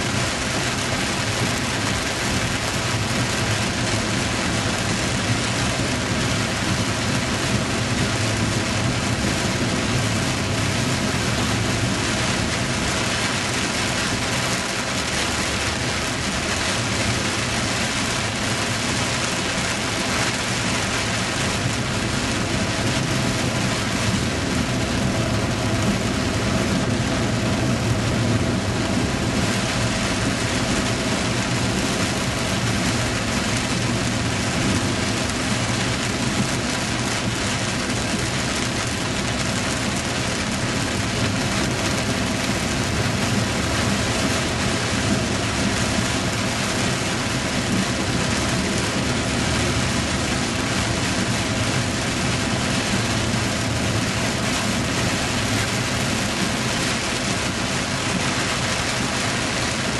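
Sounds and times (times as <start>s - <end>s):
heavy rain pouring: 0.0s - 59.9s
gusty wind rumble: 15.4s - 59.9s.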